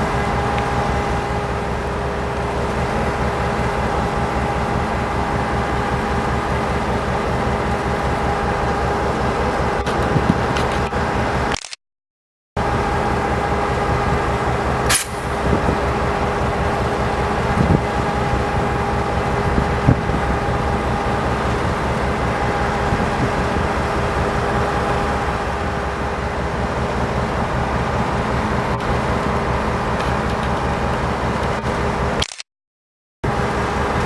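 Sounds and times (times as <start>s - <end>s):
locomotive diesel engine droning: 0.0s - 11.6s, 12.6s - 32.3s, 33.2s - 34.0s
sharp click: 11.5s - 11.8s, 14.9s - 15.4s, 32.2s - 32.5s.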